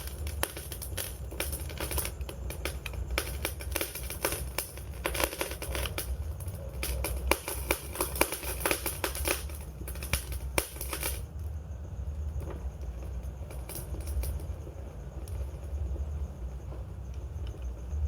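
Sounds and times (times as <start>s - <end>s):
fire pops and snaps: 0.0s - 11.6s
low rumble of burning fire: 0.0s - 18.0s.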